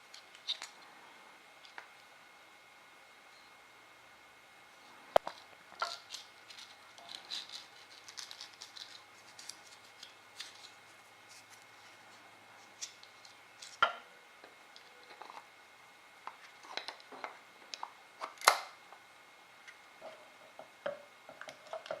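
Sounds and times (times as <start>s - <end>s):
small hard parts clicking and rattling: 5.2s - 10.7s.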